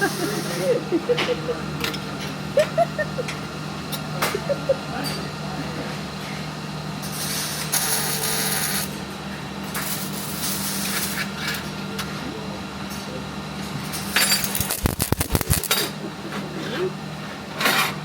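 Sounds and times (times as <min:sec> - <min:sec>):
welding hiss and crackle: 0:00.0 - 0:00.8, 0:06.9 - 0:11.8, 0:13.8 - 0:16.0
low electrical hum: 0:00.0 - 0:18.0
metal pieces clinking: 0:14.3 - 0:15.8.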